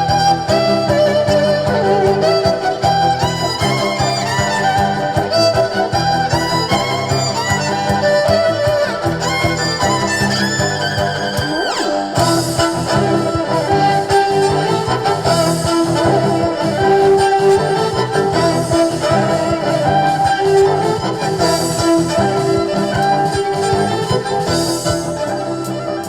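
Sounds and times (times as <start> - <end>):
band bass line: 0.0 - 26.0
violin playing a melody: 0.0 - 26.0.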